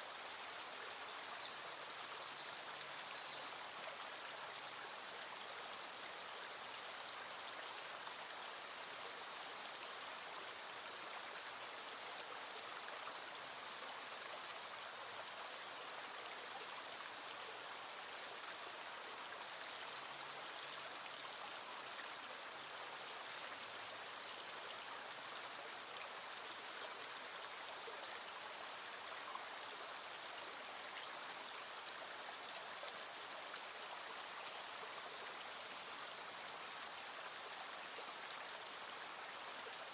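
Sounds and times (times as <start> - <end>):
small stream flowing: 0.0 - 39.9.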